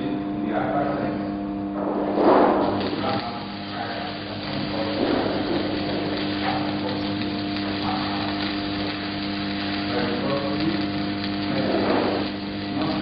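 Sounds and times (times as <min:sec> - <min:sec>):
welding machine hum: 0:00.0 - 0:13.0
welding arc crackling: 0:01.8 - 0:13.0.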